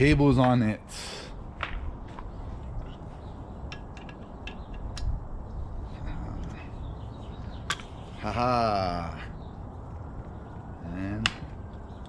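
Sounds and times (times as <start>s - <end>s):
metallic clicks of bicycle tools: 3.6s - 5.2s.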